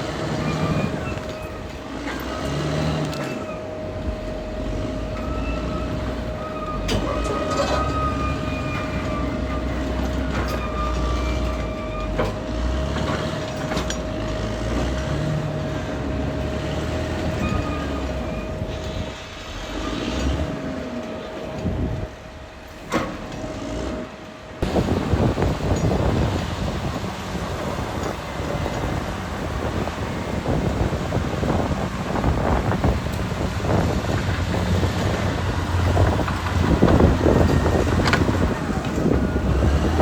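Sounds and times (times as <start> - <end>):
diesel engine running: 0.0 - 40.0
steel tracks clanking and squealing: 0.0 - 40.0.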